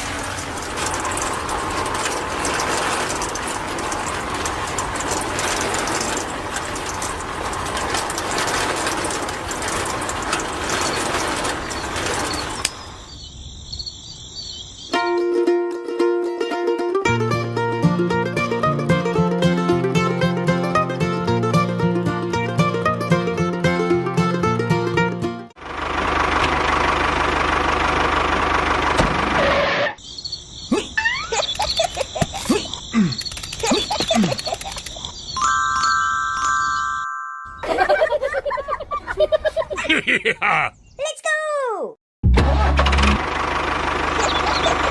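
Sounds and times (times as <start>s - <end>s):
crickets trilling: 10.7s - 15.1s, 30.0s - 35.5s
bird calls chirping: 11.6s - 15.0s, 30.0s - 37.0s, 40.4s - 41.2s, 44.2s - 44.9s.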